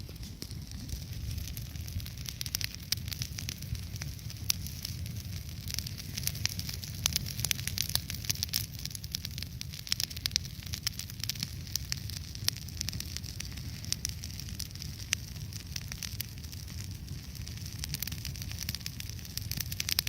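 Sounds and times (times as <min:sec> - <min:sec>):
bonfire crackling and popping: 0:00.0 - 0:20.0.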